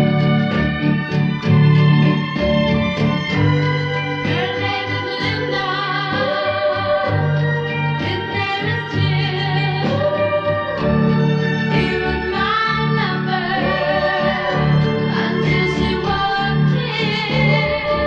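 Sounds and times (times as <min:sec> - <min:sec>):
pop song with vocals: 0:03.1 - 0:18.0.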